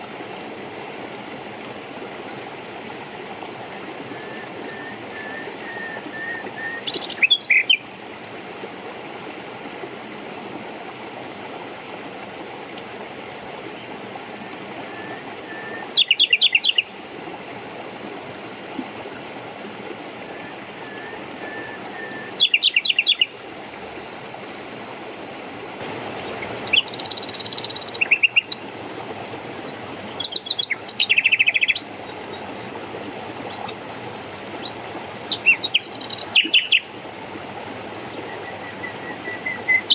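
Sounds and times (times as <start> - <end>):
running water rushing: 0.0 - 39.9
songbirds calling: 4.0 - 8.0, 13.8 - 17.1, 20.2 - 23.6, 26.1 - 28.7, 29.4 - 39.9.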